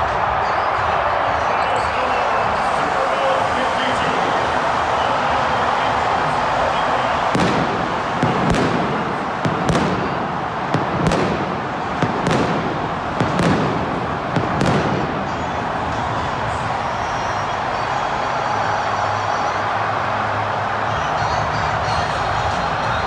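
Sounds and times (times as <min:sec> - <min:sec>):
stadium crowd cheering: 0:00.0 - 0:23.0.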